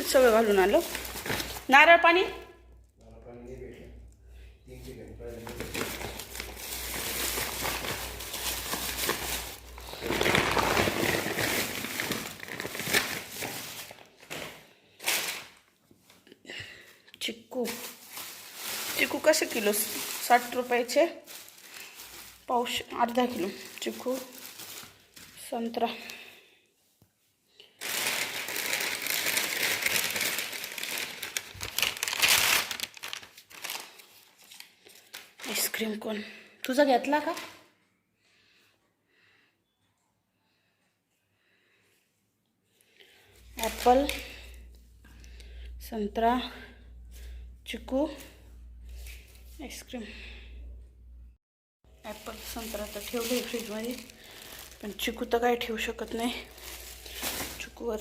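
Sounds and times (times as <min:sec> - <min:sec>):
shopping bag rustling: 0:00.0 - 0:01.8, 0:05.2 - 0:16.2, 0:17.5 - 0:26.1, 0:27.8 - 0:35.2, 0:43.5 - 0:44.6, 0:52.0 - 0:58.0.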